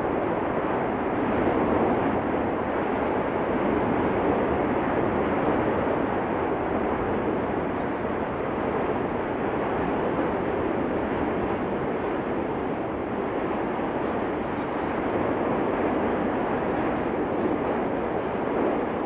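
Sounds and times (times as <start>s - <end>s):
volcano roaring: 0.0s - 19.0s.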